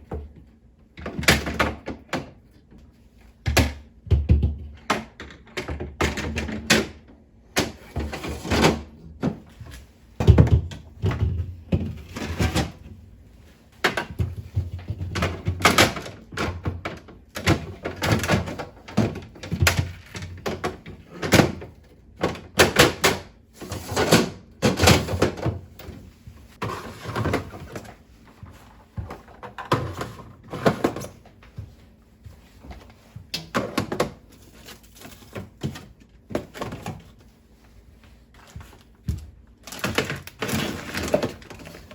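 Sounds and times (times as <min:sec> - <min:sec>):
containers knocking on shelves: 0:03.4 - 0:06.7, 0:10.2 - 0:12.7, 0:13.8 - 0:21.6.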